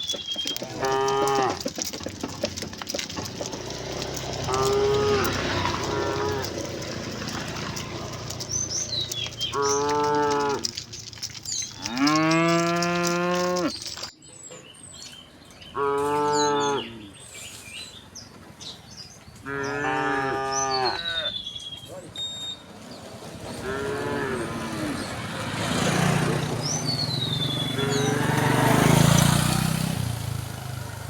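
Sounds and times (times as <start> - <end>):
cattle mooing: 0.5 - 14.1, 15.8 - 17.1, 19.5 - 21.3, 23.6 - 25.1, 27.7 - 29.0.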